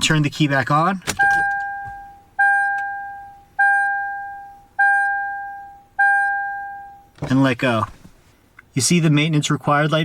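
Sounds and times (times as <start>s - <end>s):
dashboard warning chime dinging: 0.0s - 8.0s.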